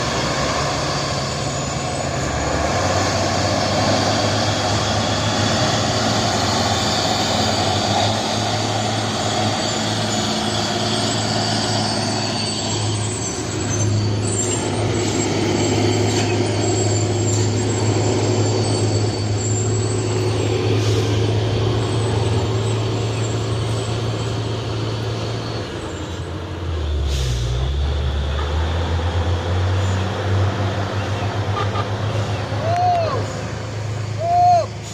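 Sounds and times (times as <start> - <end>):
diesel truck engine running: 0.0 - 34.9
road noise: 0.0 - 34.9
air brake hiss: 20.8 - 21.2, 27.0 - 27.6.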